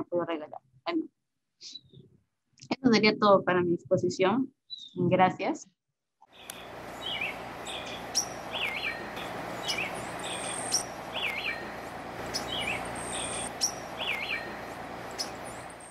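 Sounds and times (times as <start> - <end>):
birds chirping: 6.3 - 15.9
ambient hiss: 6.4 - 15.9.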